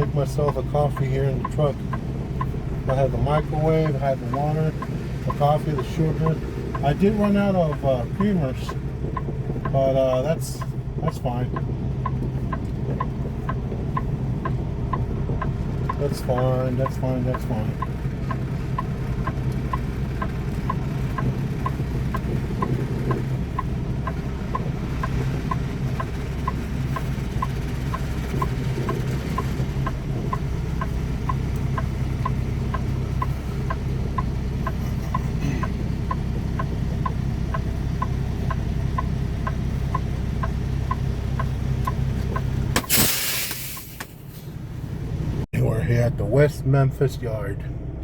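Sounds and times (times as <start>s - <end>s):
truck engine running: 0.0s - 48.0s
turn signal ticking: 0.0s - 48.0s
short loud hiss: 42.8s - 44.5s.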